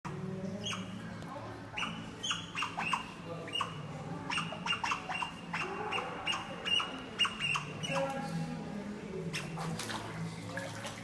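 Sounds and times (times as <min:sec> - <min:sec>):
otter squeaking: 0:00.5 - 0:08.4, 0:09.3 - 0:10.1.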